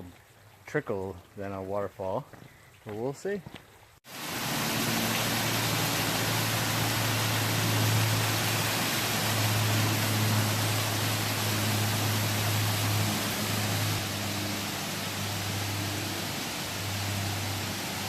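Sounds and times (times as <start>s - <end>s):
waterfall rushing: 4.1s - 18.0s.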